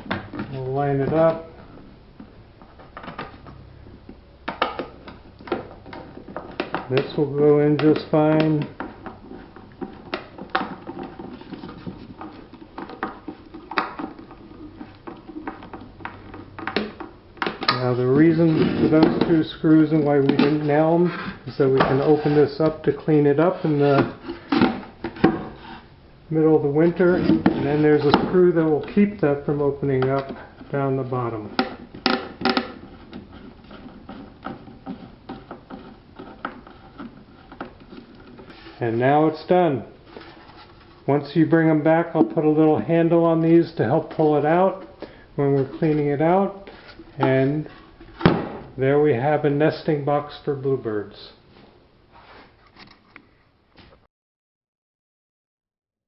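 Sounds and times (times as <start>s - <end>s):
screw and wood creaking: 17.7s - 25.9s, 26.8s - 39.2s.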